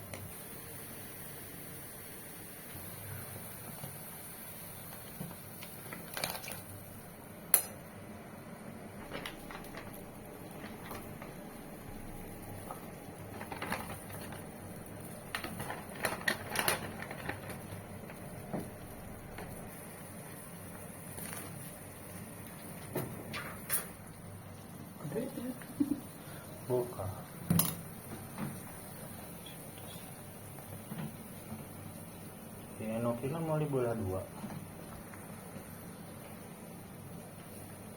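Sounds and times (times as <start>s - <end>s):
cutlery and dishes clinking: 27.5s - 27.9s.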